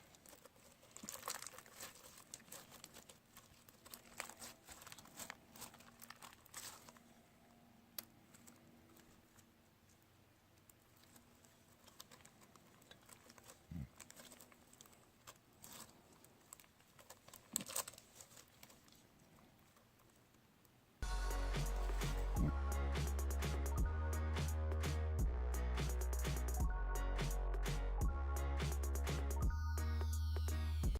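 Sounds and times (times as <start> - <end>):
slime crackling and crinkling: 0.0 - 7.2, 10.6 - 20.2.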